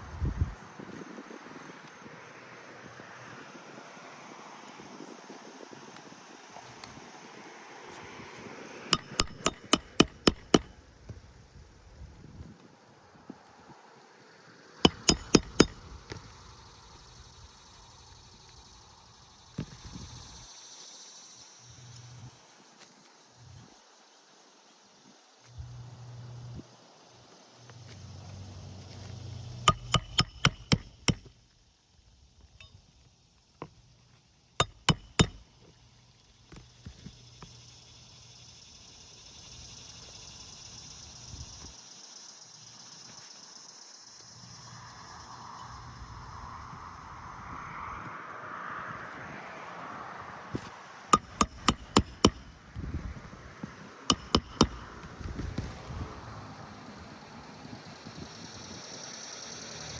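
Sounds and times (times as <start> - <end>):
hammer driving nails: 9.0 - 10.8, 14.9 - 16.2, 29.7 - 31.3, 34.6 - 35.4, 51.2 - 52.5, 54.1 - 55.7.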